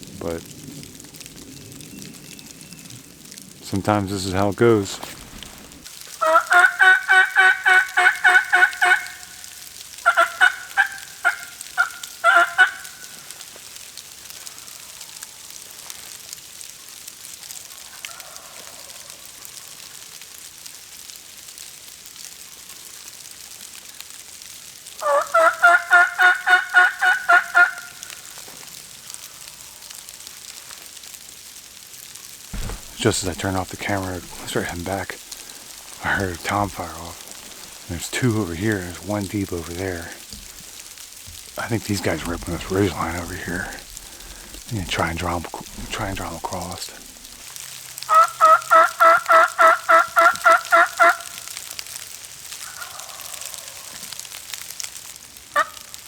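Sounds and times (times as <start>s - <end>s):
turkey gobbling: 3.8s - 13.4s, 17.8s - 19.2s, 25.0s - 28.4s, 32.6s - 51.6s, 52.6s - 54.2s, 55.5s - 56.0s.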